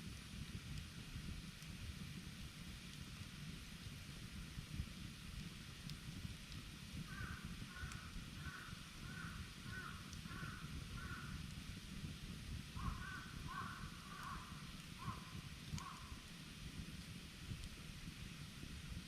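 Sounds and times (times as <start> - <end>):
campfire crackles: 0.0 - 19.0
steady low rumble: 0.0 - 19.0
bird rapid rough calls: 12.8 - 16.1.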